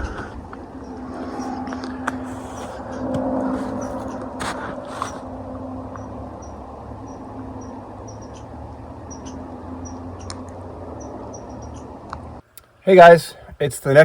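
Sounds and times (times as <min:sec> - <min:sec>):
bulldozer engine running: 0:00.0 - 0:12.4
sharp ticks: 0:02.8 - 0:12.7.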